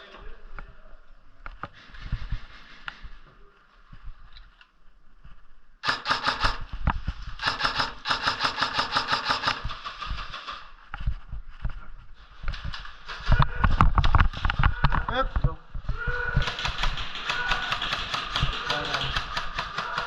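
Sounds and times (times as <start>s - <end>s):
airsoft gun firing rapid shots: 5.8s - 6.8s, 7.4s - 10.7s, 16.4s - 20.0s.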